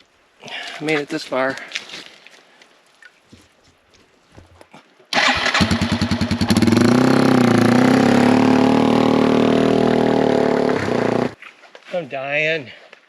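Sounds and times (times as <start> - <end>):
motorcycle engine starting and running: 5.2 - 11.4.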